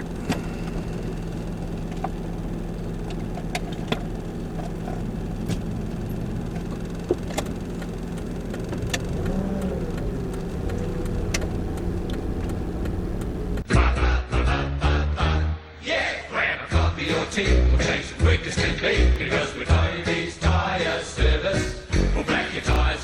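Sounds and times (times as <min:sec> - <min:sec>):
sharp clicks and knocks: 0:00.0 - 0:02.4, 0:03.0 - 0:13.7
car engine and road hum: 0:00.0 - 0:13.7.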